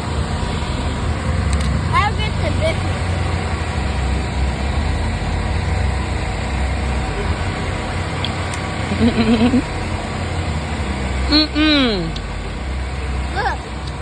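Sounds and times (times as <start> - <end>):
engine hum: 0.0 - 14.0
outdoor background noise: 0.0 - 14.0
high voice: 11.3 - 12.1.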